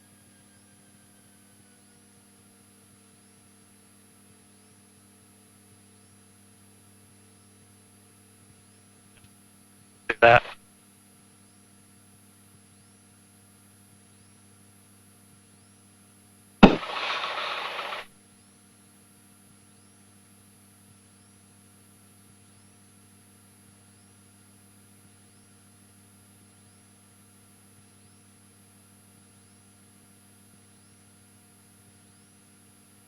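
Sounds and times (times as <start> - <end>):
radio click: 10.1 - 10.6, 16.6 - 18.1
radio electrical hum: 10.1 - 10.6, 16.6 - 18.1
radio static: 10.1 - 10.6, 16.6 - 18.1.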